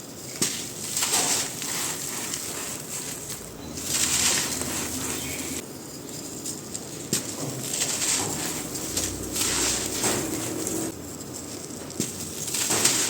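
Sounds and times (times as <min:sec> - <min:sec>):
sand crunching and crumbling: 0:00.2 - 0:05.6.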